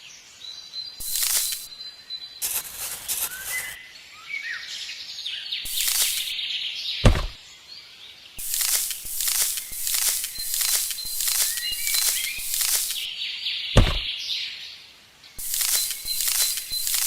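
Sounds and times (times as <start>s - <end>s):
birds chirping: 0.8s - 4.0s, 5.4s - 14.4s, 15.4s - 17.0s
high hiss bursts: 1.0s - 1.7s, 2.4s - 3.8s, 5.7s - 6.4s, 8.4s - 13.1s, 13.8s - 14.1s, 15.4s - 17.0s
sharp thump: 7.0s - 7.4s, 13.8s - 14.1s.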